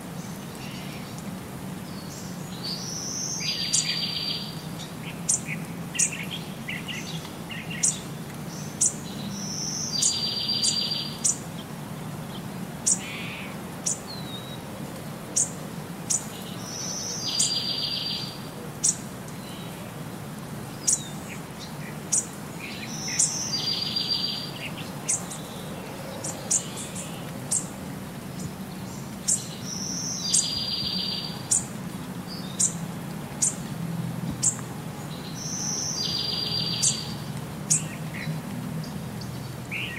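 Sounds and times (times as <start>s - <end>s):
bird chirping: 1.9s - 11.4s, 16.1s - 19.8s, 20.8s - 27.7s, 28.4s - 31.7s, 32.3s - 32.8s, 34.4s - 39.9s.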